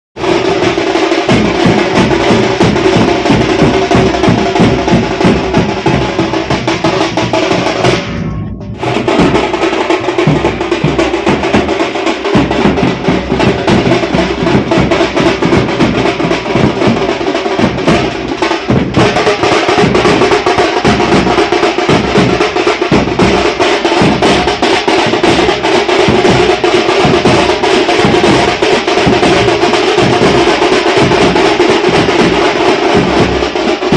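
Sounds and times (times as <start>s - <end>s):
drums playing fast beat: 0.2s - 33.9s.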